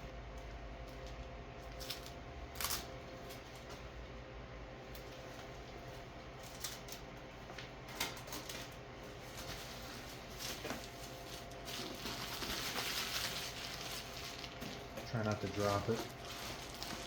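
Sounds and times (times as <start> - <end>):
packaging rustling: 8.2 - 17.0.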